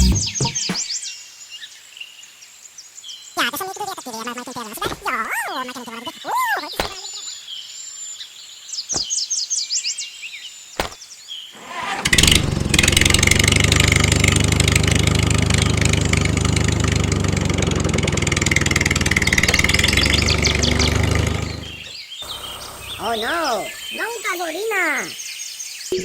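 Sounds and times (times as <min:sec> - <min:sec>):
small engine running: 0:00.0 - 0:00.3, 0:11.6 - 0:22.9
birds chirping: 0:00.0 - 0:01.7, 0:03.5 - 0:11.6, 0:18.2 - 0:26.0.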